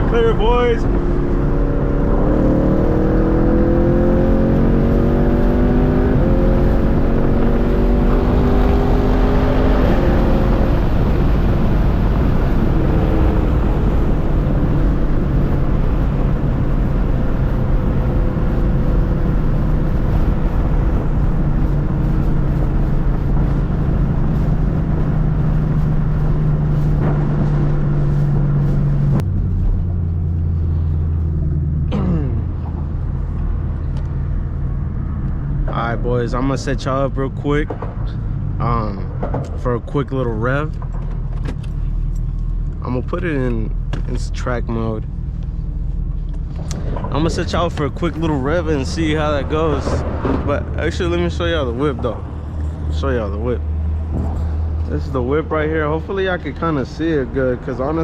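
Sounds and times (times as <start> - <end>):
car exhaust accelerating: 0.0 - 58.0.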